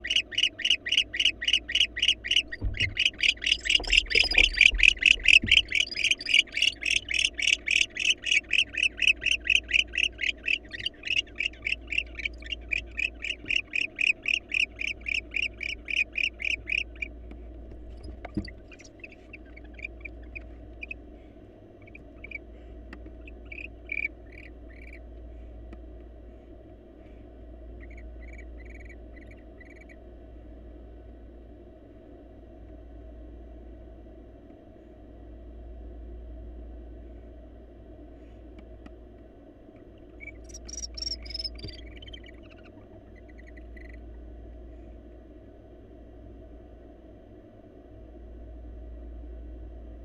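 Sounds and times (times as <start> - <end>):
owl harsh calls: 0.0 - 17.1, 40.2 - 44.0
dull thumps: 2.4 - 6.2.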